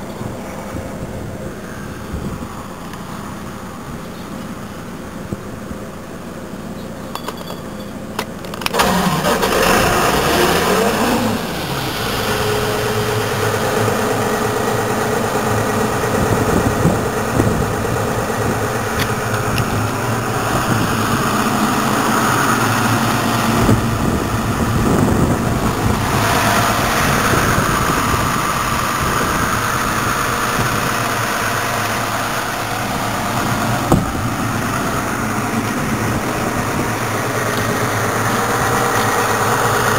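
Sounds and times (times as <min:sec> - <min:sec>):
diesel compressor engine running: 0:00.0 - 0:39.9.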